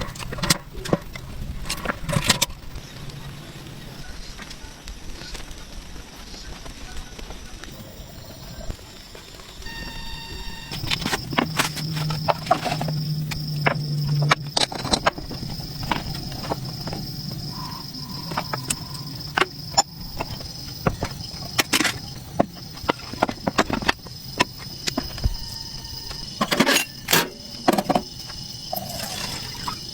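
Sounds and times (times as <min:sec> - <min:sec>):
high-pitched insect drone: 0:07.7 - 0:29.9.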